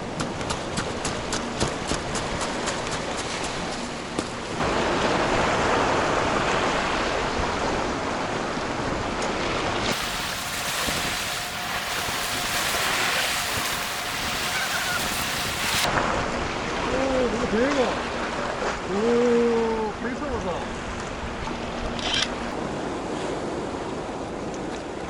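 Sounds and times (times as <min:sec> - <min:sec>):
wind on microphone: 0:08.8 - 0:16.9
waves washing against rocks: 0:09.9 - 0:15.9.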